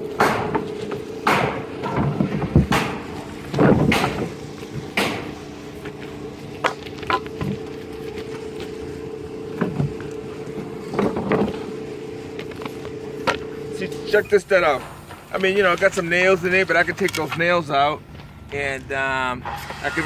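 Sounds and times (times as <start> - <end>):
engine idling: 0.0 - 19.4
scrap lumber knocking and clattering: 0.1 - 8.7, 9.5 - 11.8.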